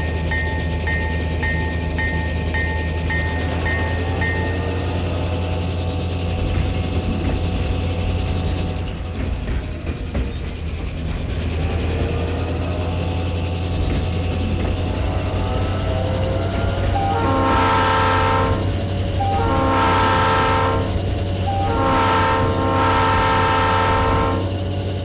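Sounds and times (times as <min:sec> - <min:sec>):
train horn blasts: 0:14.8 - 0:24.6.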